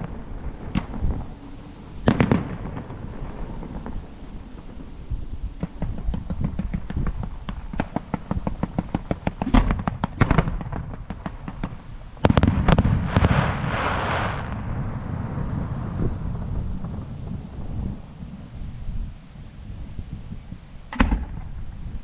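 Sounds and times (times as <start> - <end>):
firework bangs: 0.0 - 19.0, 20.9 - 21.8
firework crackling shower: 0.0 - 22.0
firework pops: 0.7 - 1.1, 5.6 - 14.6, 20.9 - 21.6.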